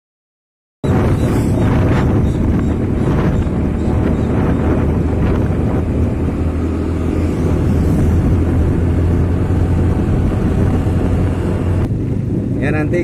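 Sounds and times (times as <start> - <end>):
vehicle engine and road noise: 0.8 - 13.0.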